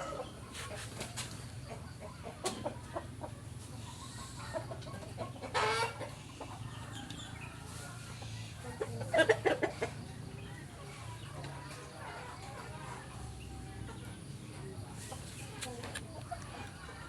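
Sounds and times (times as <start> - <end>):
fowl clucking: 0.0 - 7.1, 7.7 - 10.1.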